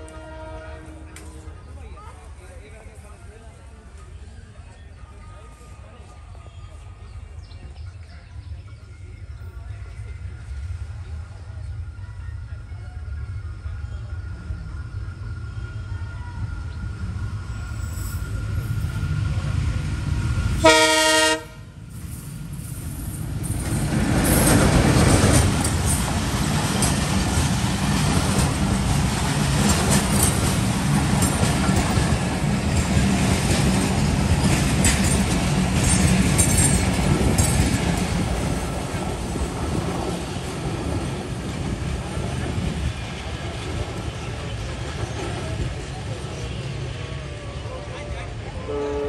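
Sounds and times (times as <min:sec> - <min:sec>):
locomotive horn blast: 0:00.0 - 0:01.5, 0:20.6 - 0:21.8, 0:48.6 - 0:49.0
train rumbling past: 0:00.0 - 0:49.0
wheels clacking over rail joints: 0:23.1 - 0:41.1.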